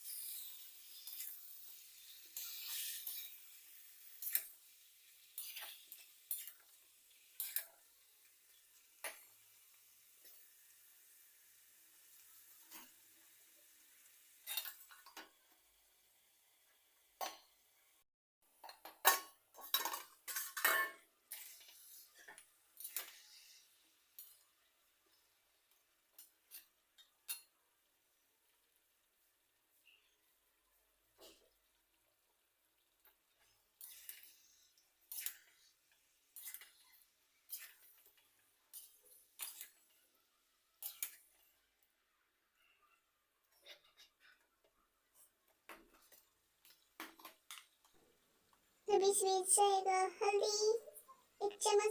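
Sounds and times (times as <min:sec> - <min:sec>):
onions frying: 0:00.0 - 0:18.0, 0:18.6 - 0:42.4, 0:45.1 - 0:51.9
metal spoon scraping a pan: 0:00.1 - 0:04.5, 0:05.2 - 0:06.7, 0:07.3 - 0:07.8, 0:14.4 - 0:15.1, 0:19.1 - 0:24.4, 0:33.8 - 0:40.0, 0:40.8 - 0:41.4
spoon scraping pan: 0:33.8 - 0:40.0.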